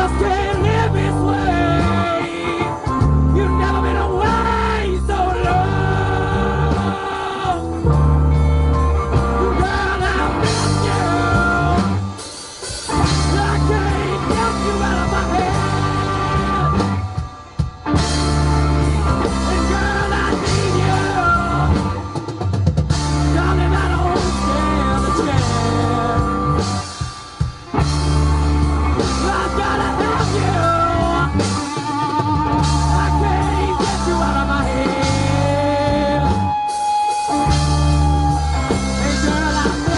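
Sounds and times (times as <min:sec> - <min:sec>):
heavy bass line: 0:00.0 - 0:39.9
rock band playing: 0:00.0 - 0:39.9
person singing: 0:09.4 - 0:12.0, 0:13.0 - 0:17.3, 0:18.6 - 0:22.0, 0:23.1 - 0:26.8, 0:28.9 - 0:39.9.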